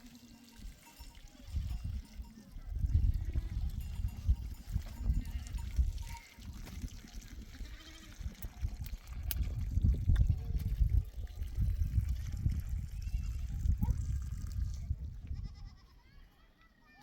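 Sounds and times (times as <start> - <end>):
goats bleating: 7.4 - 8.2, 15.4 - 16.1.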